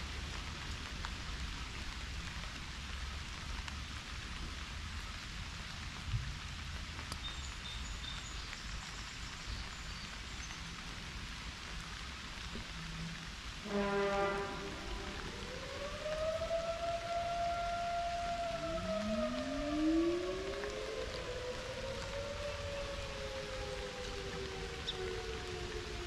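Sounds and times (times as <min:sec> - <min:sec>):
pouring rain: 0:00.0 - 0:26.0
low rumble: 0:13.7 - 0:16.5.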